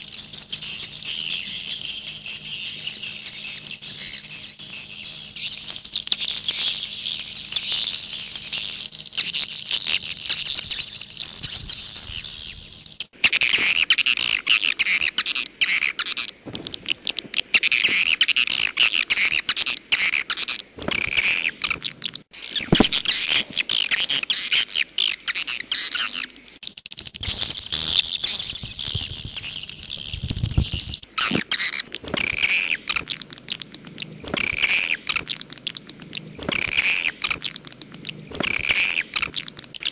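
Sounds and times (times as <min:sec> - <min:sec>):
swiftlets twittering: 0:26.6 - 0:39.9.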